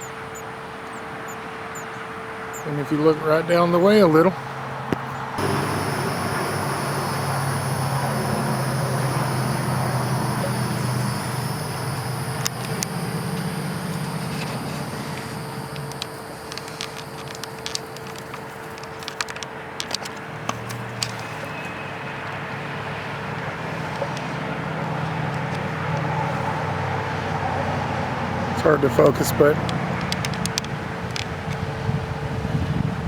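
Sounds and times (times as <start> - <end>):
small sharp clicks: 4.9 - 21.5, 29.6 - 31.6
low hum: 5.4 - 18.3
faint steady tone: 5.4 - 18.9.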